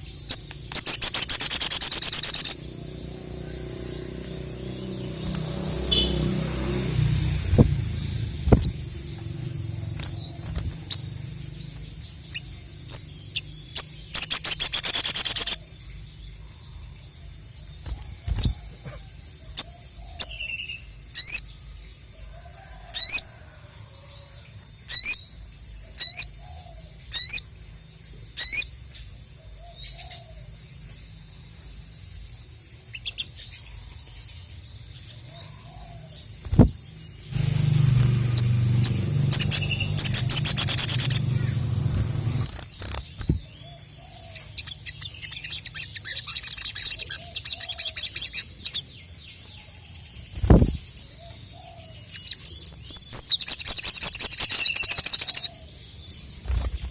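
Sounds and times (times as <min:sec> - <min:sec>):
loud falling bird calls: 0:00.0 - 0:15.8, 0:17.6 - 0:20.6, 0:35.3 - 0:48.9, 0:50.0 - 0:55.6
bird chirping and trilling: 0:00.0 - 0:21.8, 0:24.2 - 0:56.9.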